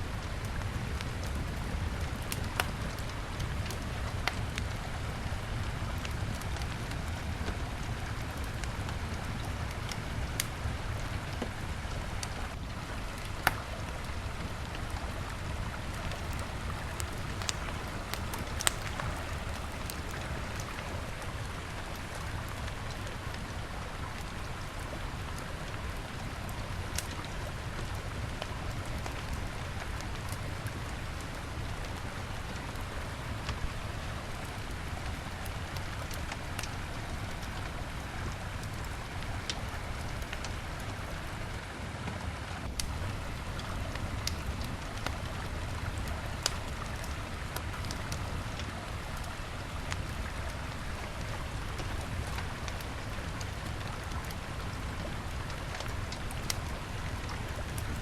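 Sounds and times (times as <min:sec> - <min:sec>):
campfire crackling and popping: 0:12.2 - 0:13.9, 0:16.0 - 0:33.6, 0:42.6 - 0:58.0
river rushing: 0:16.0 - 0:22.4.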